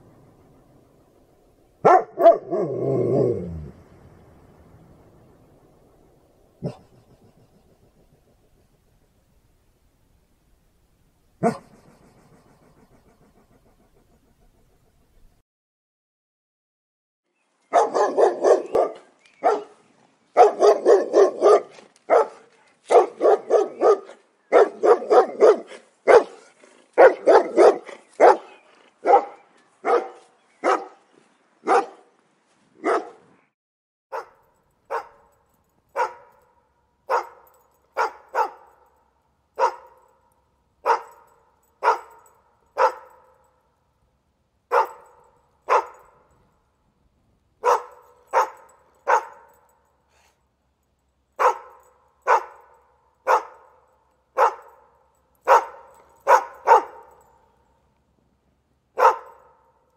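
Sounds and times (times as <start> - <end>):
dog barking: 1.8 - 2.9, 6.6 - 7.2, 11.4 - 14.7, 17.7 - 19.8, 20.4 - 31.0, 31.6 - 32.1, 32.8 - 33.2, 34.1 - 39.0, 39.6 - 40.2, 40.8 - 43.4, 44.7 - 46.3, 47.6 - 49.7, 51.4 - 53.8, 54.4 - 57.4, 59.0 - 59.8.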